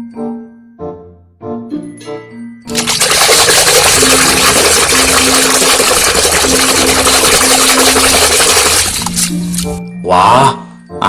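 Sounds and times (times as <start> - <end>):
water pouring and splashing: 2.7 - 9.8.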